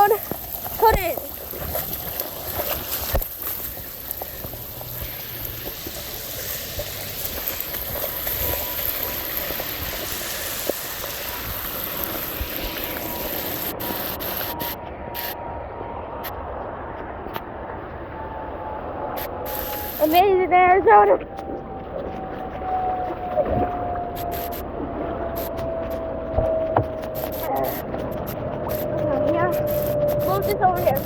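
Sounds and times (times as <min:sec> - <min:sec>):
floodwater rushing: 0:00.0 - 0:15.4.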